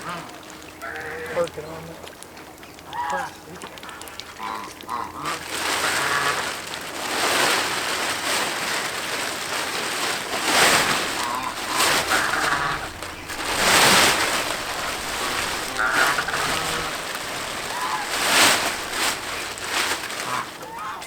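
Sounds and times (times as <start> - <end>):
plastic film crinkling: 5.0 - 21.0.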